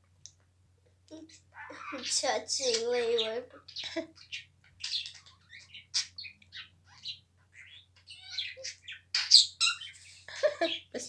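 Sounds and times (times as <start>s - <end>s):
pet bird chirping: 1.1s - 11.0s.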